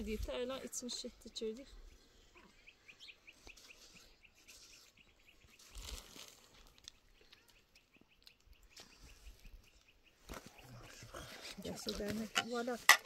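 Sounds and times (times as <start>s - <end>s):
faint small bird chirping: 1.2s - 11.3s.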